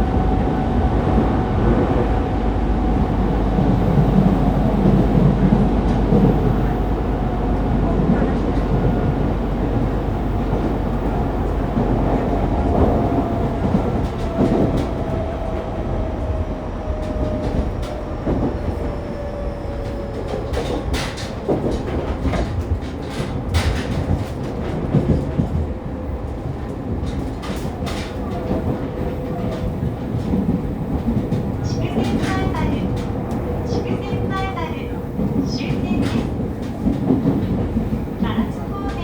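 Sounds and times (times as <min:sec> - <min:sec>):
train wheels and motors rumbling: 0:00.0 - 0:39.0
clicks and knocks from track: 0:19.8 - 0:39.0.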